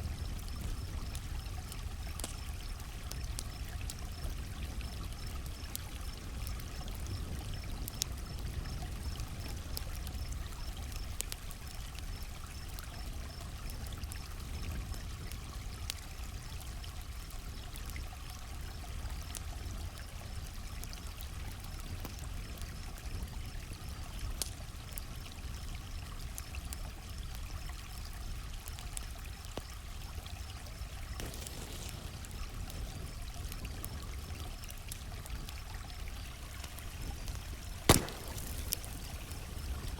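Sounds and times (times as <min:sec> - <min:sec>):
campfire crackling: 0:00.0 - 0:39.9
creek water flowing: 0:27.2 - 0:39.9
crickets chirping: 0:30.4 - 0:35.1, 0:37.4 - 0:39.9.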